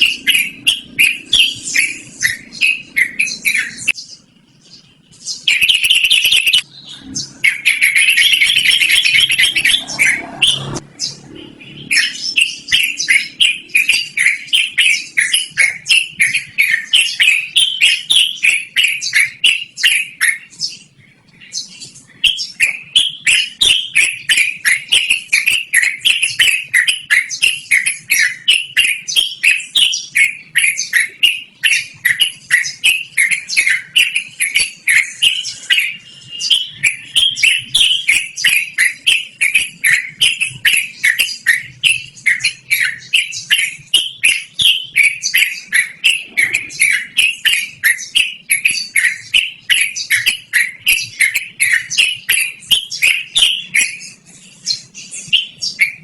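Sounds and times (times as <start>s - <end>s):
bird singing bubbly falling notes: 32.8s - 53.9s.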